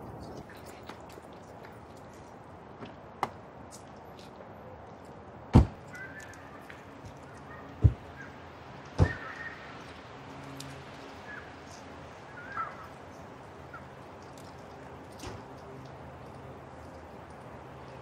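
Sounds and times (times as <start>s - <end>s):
birds chirping: 5.9s - 9.8s, 11.2s - 14.0s.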